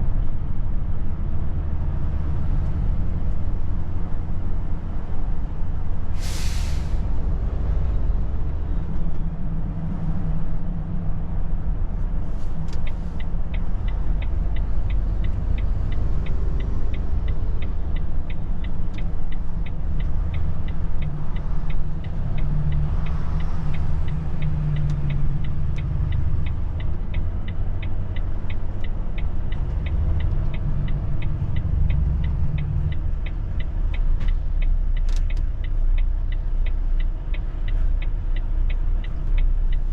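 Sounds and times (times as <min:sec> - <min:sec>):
air brake hiss: 0:06.1 - 0:07.1
turn signal ticking: 0:07.2 - 0:39.9.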